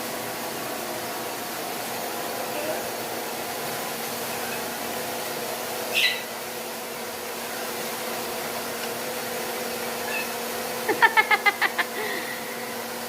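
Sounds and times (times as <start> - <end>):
appliance humming and hissing: 0.0 - 13.0
parrot chirp: 5.9 - 6.3.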